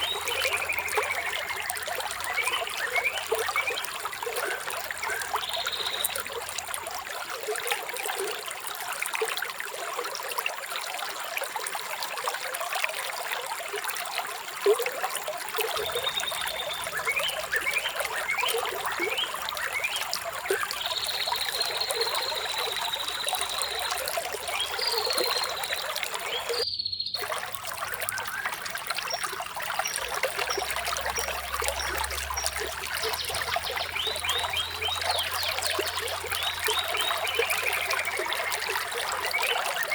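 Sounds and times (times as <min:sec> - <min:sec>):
shallow water trickling: 0:00.0 - 0:39.9
bird calling: 0:15.8 - 0:30.6.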